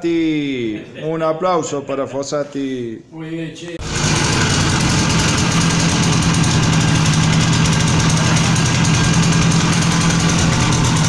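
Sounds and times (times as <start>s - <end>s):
motorcycle engine idling: 3.8s - 11.0s.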